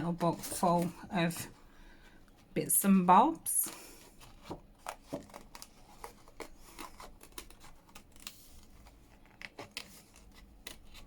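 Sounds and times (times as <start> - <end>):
paper and card rustling: 2.9 - 11.0.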